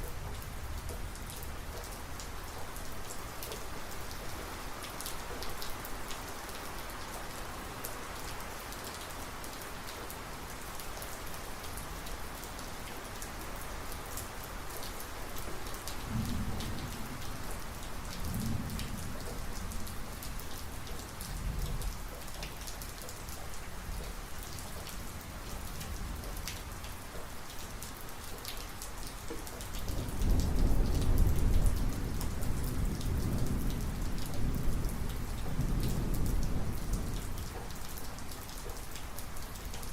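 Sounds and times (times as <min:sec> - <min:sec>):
heavy rain falling: 0:00.0 - 0:39.9
thunder rumbling: 0:16.1 - 0:20.2.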